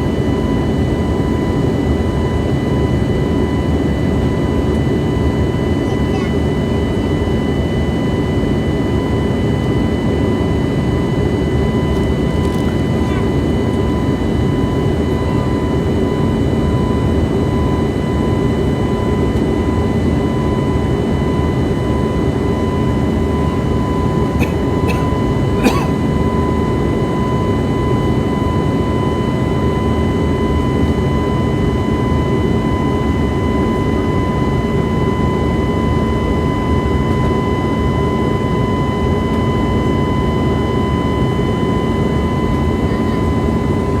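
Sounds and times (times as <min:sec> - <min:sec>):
jet engines rumbling: 0:05.6 - 0:17.3.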